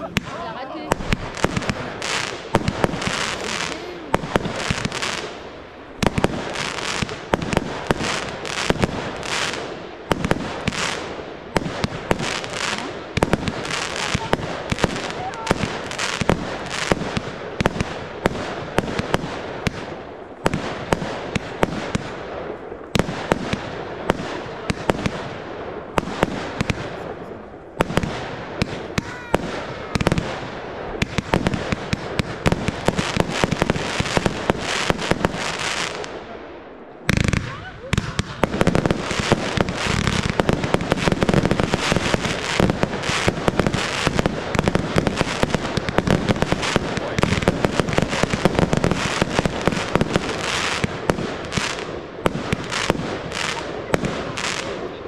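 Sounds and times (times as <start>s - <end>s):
fireworks bangs: 0.0s - 55.0s
fireworks crackling: 0.0s - 55.0s.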